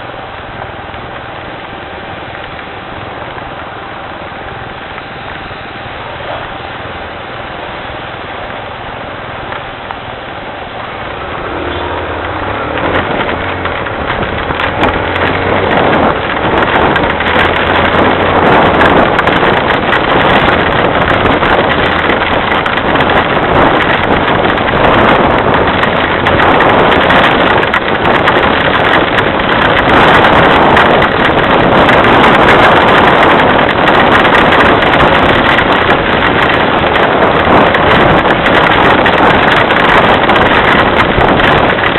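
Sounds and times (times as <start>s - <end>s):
low hum: 0.0s - 32.6s
heavy rain falling: 0.0s - 41.9s.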